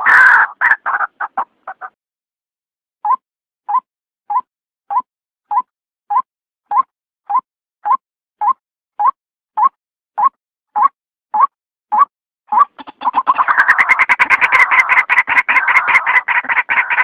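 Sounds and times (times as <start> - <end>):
waterhen calling: 0.0 - 2.0, 12.5 - 17.0.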